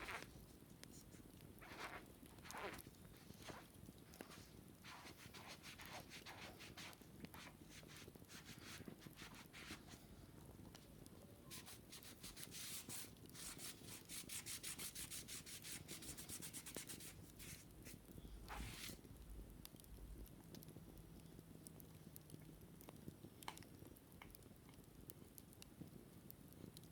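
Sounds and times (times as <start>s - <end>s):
wicker basket being scratched: 0.0s - 0.3s, 1.6s - 9.9s, 11.5s - 19.0s.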